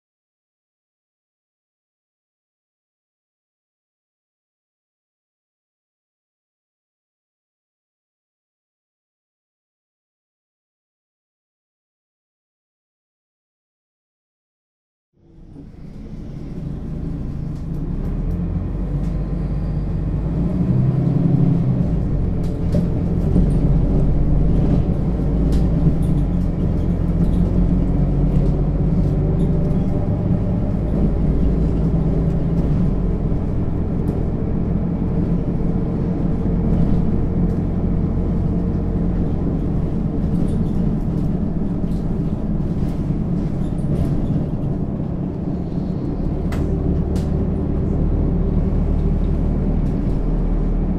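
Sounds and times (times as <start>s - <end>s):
bus diesel engine rumble: 15.2s - 50.9s.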